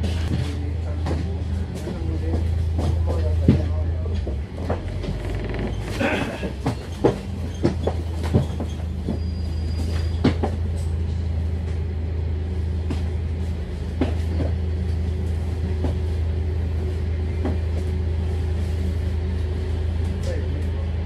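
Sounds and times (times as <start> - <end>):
bus diesel engine droning: 0.0 - 21.0
bodywork knocks and rattles: 2.4 - 9.3.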